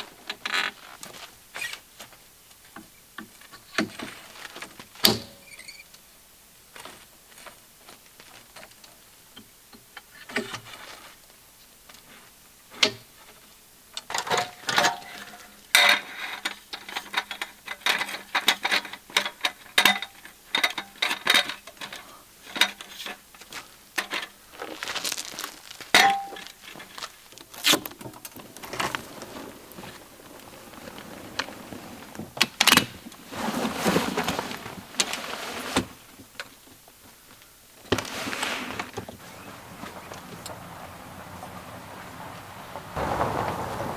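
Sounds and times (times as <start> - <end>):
camp gear clinking and clattering: 14.0 - 36.7
rustling: 21.4 - 43.9.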